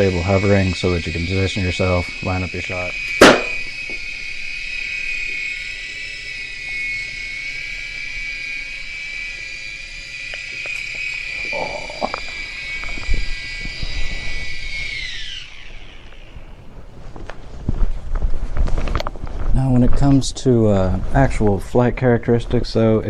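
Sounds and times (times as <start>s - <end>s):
toy helicopter motor whine: 0.0s - 16.7s.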